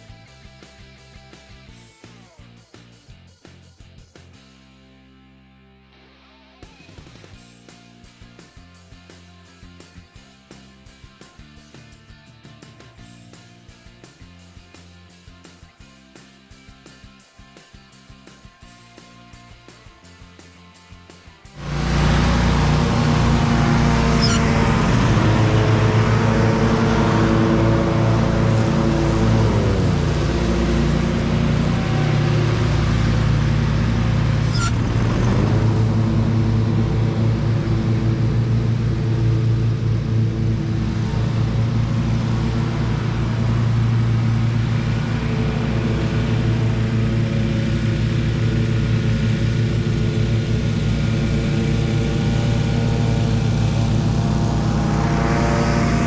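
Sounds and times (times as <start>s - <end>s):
engine running: 21.5s - 56.0s.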